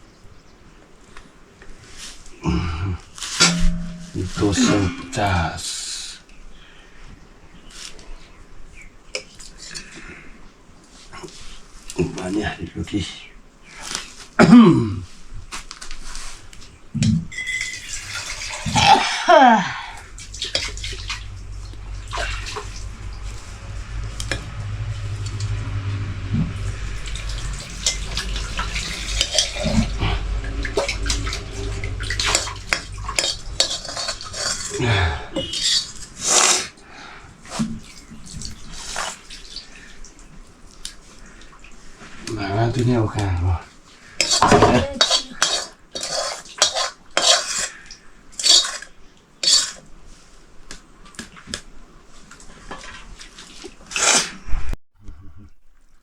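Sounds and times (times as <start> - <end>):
pots and dishes clinking: 3.4 - 5.4, 17.0 - 19.3, 30.6 - 34.8, 44.2 - 47.8
water being poured: 17.3 - 41.8.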